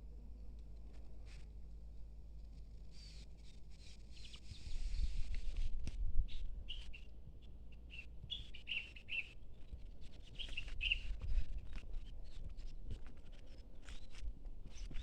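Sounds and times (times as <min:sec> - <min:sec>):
small birds chirping: 0:02.7 - 0:05.7, 0:06.3 - 0:15.0.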